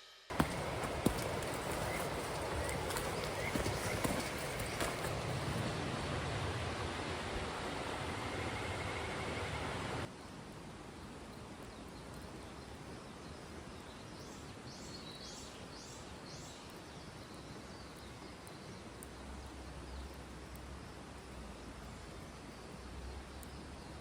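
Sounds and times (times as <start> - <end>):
faint steady hiss: 0.1 - 24.0
small bird calling: 0.3 - 5.7
faint low wind rumble: 0.3 - 13.8.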